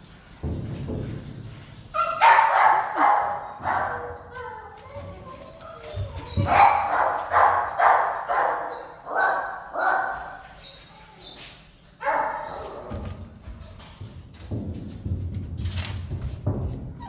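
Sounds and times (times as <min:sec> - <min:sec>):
dog barking: 0:02.0 - 0:04.5, 0:06.4 - 0:10.3, 0:12.0 - 0:12.9.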